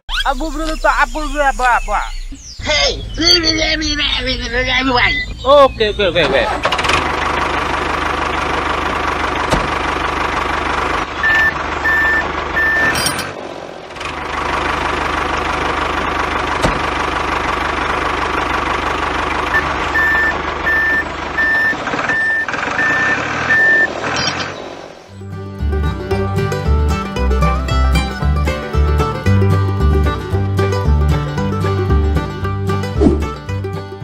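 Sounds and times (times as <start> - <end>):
heavy vehicle engine running: 2.2 - 34.0
reversing alarm beeps: 11.2 - 13.2, 19.6 - 24.3.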